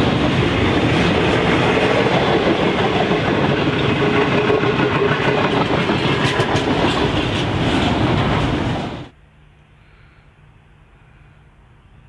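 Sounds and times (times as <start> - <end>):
steel wheels rumbling on rail: 0.0 - 9.1
wheels clicking over track: 0.0 - 9.1.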